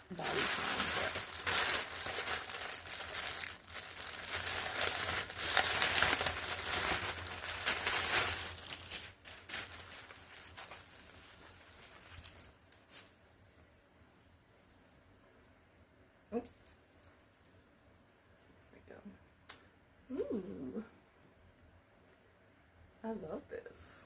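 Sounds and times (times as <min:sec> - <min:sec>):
packaging crinkling and rustling: 0:00.0 - 0:13.2.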